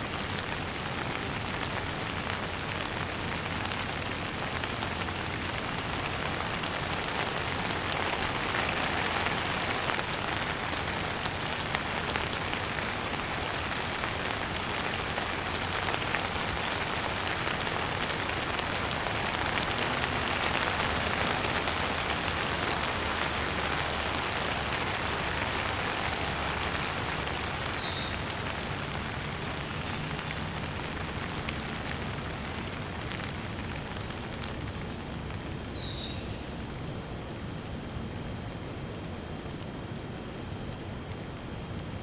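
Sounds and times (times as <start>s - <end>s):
steady rain falling: 0.0s - 42.0s
bird chirping: 27.8s - 28.4s, 35.7s - 36.6s.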